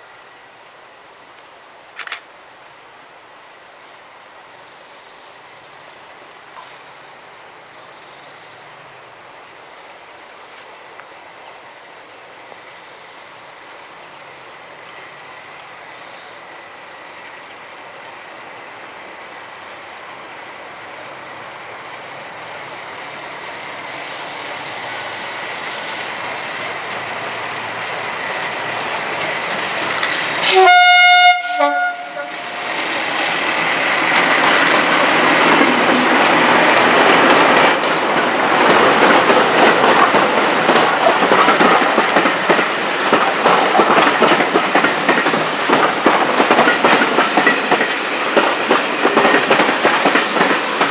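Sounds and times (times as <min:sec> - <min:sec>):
diesel locomotive engine: 0:03.9 - 0:50.9
wheels clicking over rail joints: 0:22.8 - 0:30.6, 0:32.6 - 0:50.9
locomotive horn: 0:30.4 - 0:32.7.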